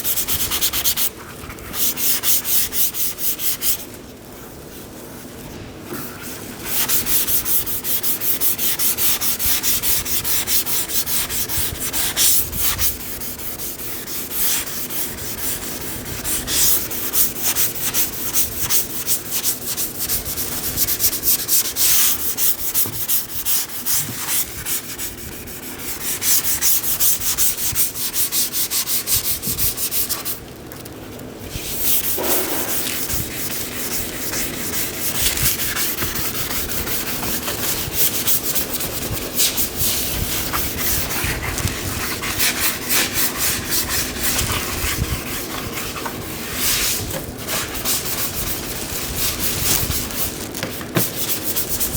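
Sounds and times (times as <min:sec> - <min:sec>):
sanding strokes on car panel: 0:06.6 - 0:30.3, 0:31.5 - 0:51.9.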